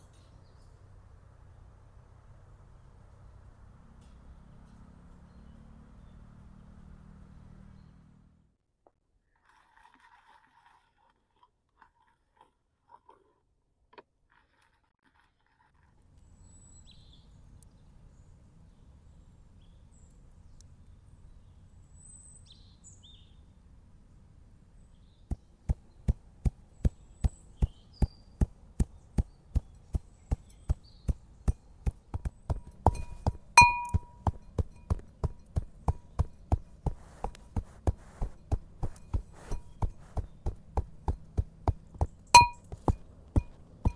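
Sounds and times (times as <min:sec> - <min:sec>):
birds chirping: 0:02.5 - 0:08.4, 0:24.8 - 0:37.6, 0:38.4 - 0:43.9
metallic ringing strike: 0:33.0 - 0:34.2, 0:42.4 - 0:42.6.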